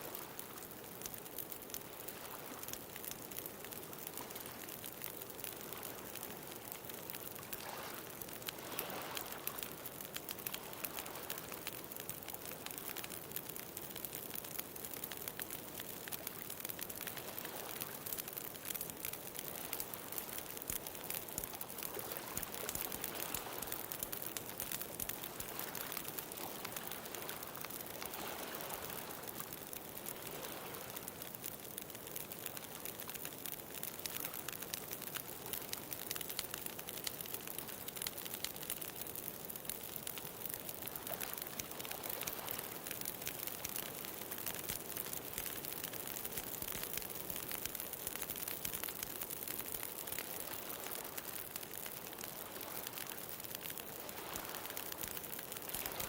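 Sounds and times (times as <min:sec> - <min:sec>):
bonfire crackling: 0:00.0 - 0:56.0
ocean waves: 0:08.6 - 0:09.6, 0:21.8 - 0:29.5, 0:30.1 - 0:31.1, 0:54.0 - 0:56.0.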